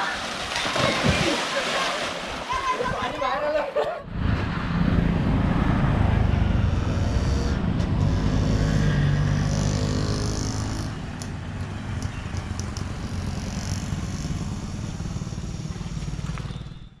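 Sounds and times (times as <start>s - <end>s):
motorcycle engine running: 6.4s - 17.0s.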